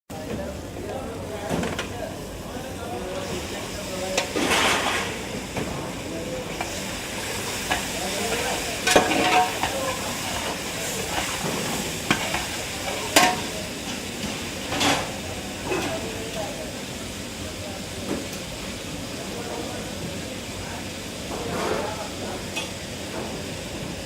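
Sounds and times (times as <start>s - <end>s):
frying sizzle: 0.1s - 24.0s.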